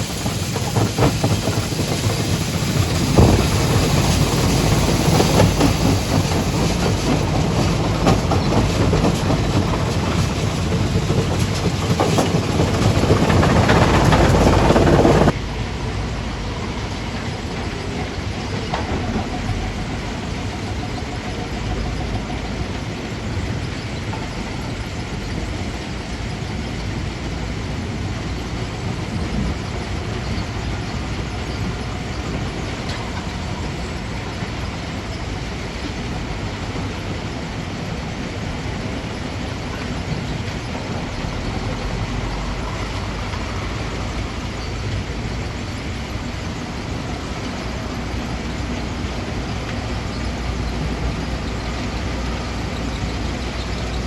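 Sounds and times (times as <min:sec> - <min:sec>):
stone crusher machinery din: 0:00.0 - 0:15.3.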